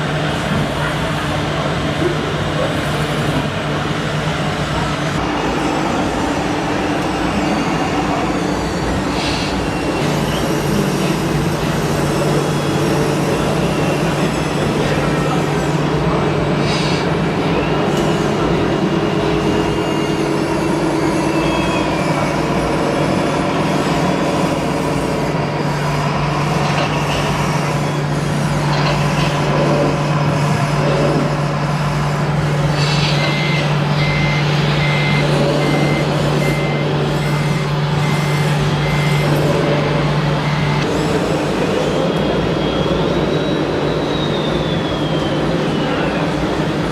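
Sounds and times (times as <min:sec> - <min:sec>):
truck engine running: 0:00.0 - 0:45.2
reversing beeper: 0:32.7 - 0:40.9.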